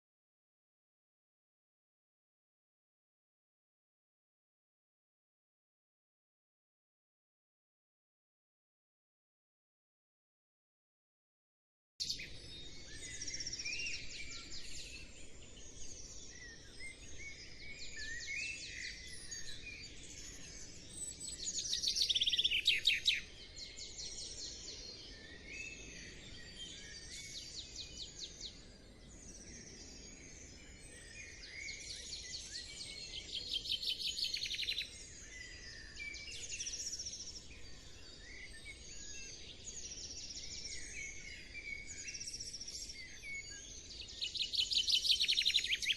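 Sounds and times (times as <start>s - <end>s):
songbirds chirping and twittering: 12.0s - 45.9s.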